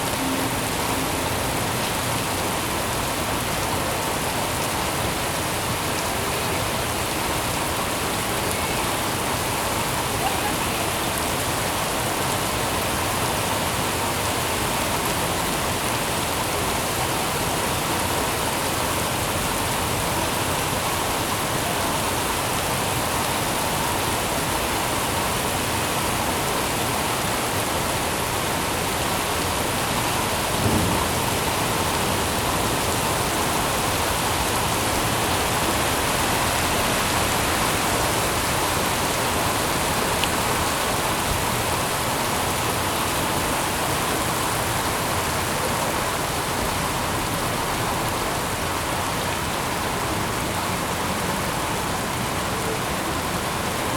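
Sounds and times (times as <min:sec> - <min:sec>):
heavy rain falling: 0:00.0 - 0:53.9
brief low thump: 0:30.6 - 0:31.5.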